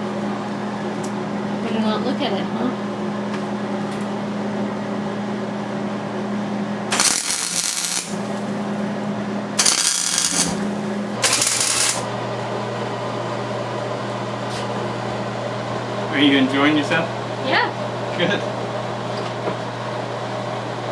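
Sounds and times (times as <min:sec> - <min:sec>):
harsh hissing bursts: 0:06.9 - 0:08.5, 0:09.6 - 0:12.1
steady hum: 0:06.9 - 0:12.4.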